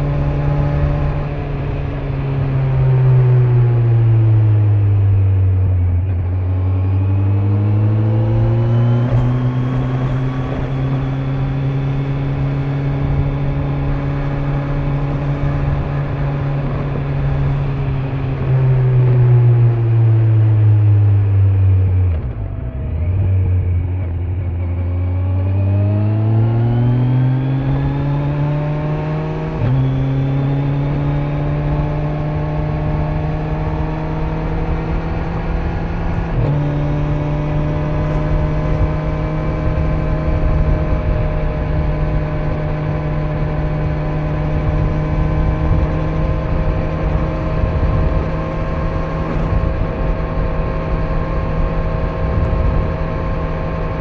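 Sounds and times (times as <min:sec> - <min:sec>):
motorcycle engine revving: 0:00.0 - 0:54.0
wind noise: 0:25.8 - 0:54.0.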